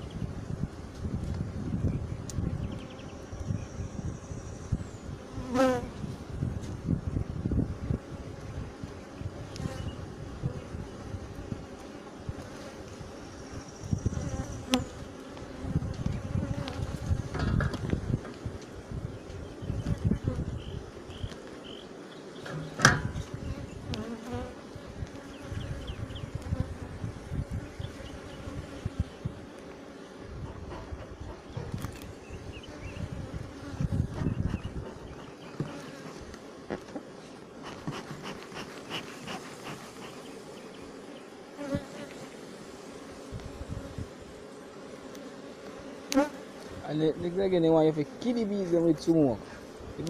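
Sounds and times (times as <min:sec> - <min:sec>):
honeybees buzzing: 0:00.0 - 0:50.0
sharp thump: 0:22.5 - 0:23.2.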